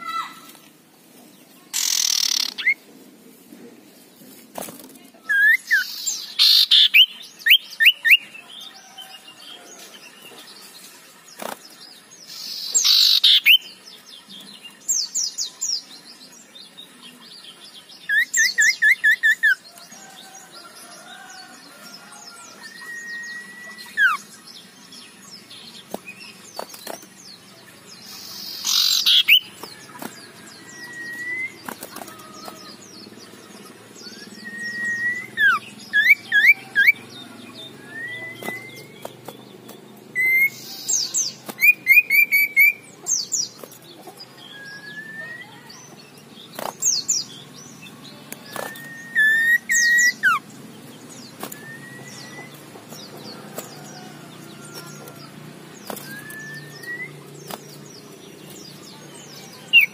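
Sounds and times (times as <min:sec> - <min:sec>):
bird chattering notes: 0:01.7 - 0:02.8, 0:05.4 - 0:08.3, 0:28.0 - 0:30.0
bird harsh rasping calls: 0:01.7 - 0:02.8, 0:05.3 - 0:08.1, 0:12.3 - 0:13.6, 0:28.0 - 0:29.6.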